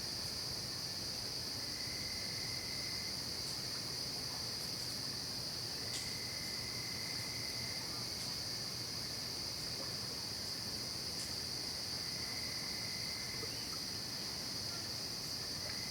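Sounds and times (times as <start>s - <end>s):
crickets trilling: 0.0s - 15.9s.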